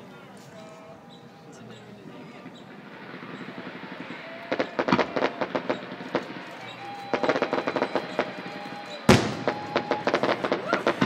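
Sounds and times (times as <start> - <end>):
fireworks crackling and popping: 0.0 - 11.0
faint whistle-like tone: 5.6 - 10.3.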